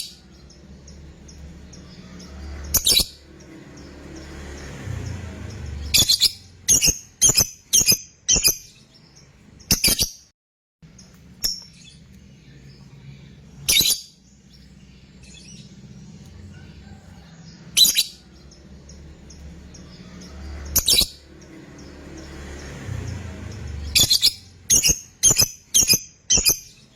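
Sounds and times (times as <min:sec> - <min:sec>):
lovebird high calls: 0:01.2 - 0:03.3, 0:05.5 - 0:08.8, 0:13.6 - 0:14.2, 0:17.6 - 0:18.6, 0:19.2 - 0:21.9, 0:23.5 - 0:26.9.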